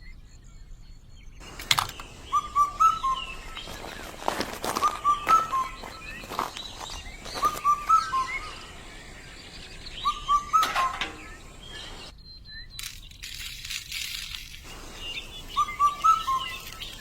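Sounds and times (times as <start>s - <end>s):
birds chirping: 0.0s - 17.0s
sharp clicks: 1.4s - 3.7s.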